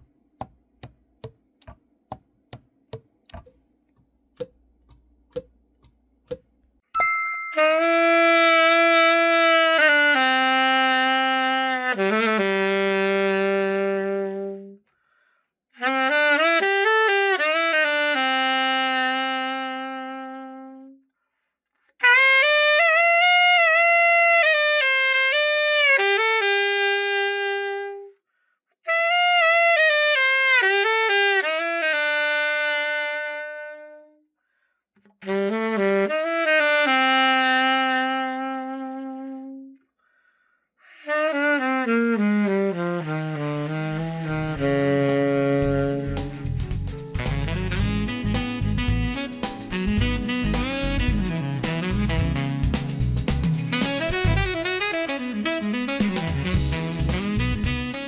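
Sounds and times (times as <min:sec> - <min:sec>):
alto saxophone phrases: 0:07.6 - 0:14.8, 0:15.8 - 0:21.0, 0:22.0 - 0:28.2, 0:28.9 - 0:34.2, 0:35.2 - 0:39.8, 0:40.9 - 0:53.0, 0:53.6 - 0:58.0.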